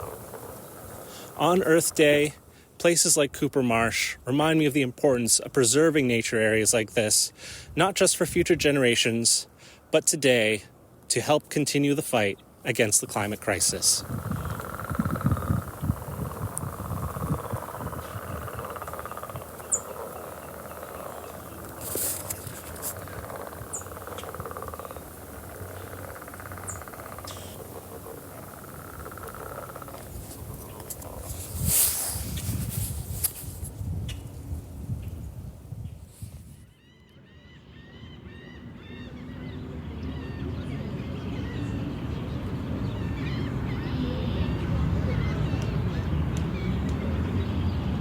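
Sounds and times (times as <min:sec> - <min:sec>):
frogs trilling: 0:00.0 - 0:02.3, 0:13.0 - 0:32.1
bird repeated call: 0:13.2 - 0:32.1
bird chirps: 0:13.7 - 0:31.2.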